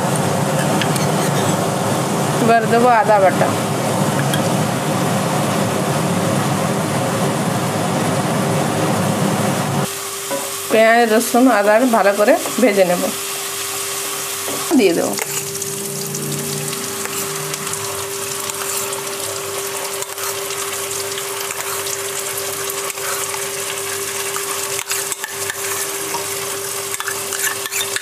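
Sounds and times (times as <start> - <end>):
steady hum: 0.0 - 28.0
paste sizzling in hot oil: 9.9 - 28.0.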